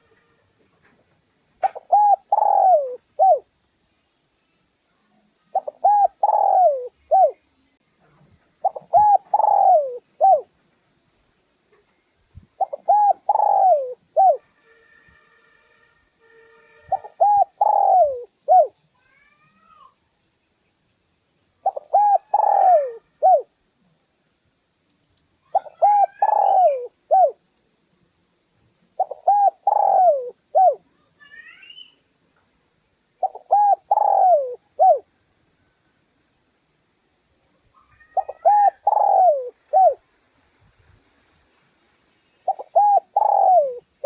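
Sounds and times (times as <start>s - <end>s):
dove cooing: 1.6s - 3.5s, 5.5s - 7.4s, 8.6s - 10.5s, 12.6s - 14.4s, 16.9s - 18.8s, 21.6s - 23.5s, 25.5s - 27.4s, 29.0s - 30.8s, 33.2s - 35.1s, 38.0s - 40.0s, 42.4s - 44.0s.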